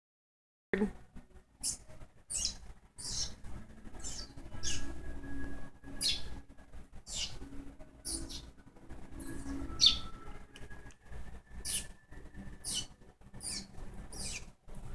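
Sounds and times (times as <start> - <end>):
baby bird cheeping: 1.6 - 5.1, 5.9 - 6.4, 7.1 - 8.5, 9.2 - 10.2, 11.6 - 12.0, 12.6 - 14.5.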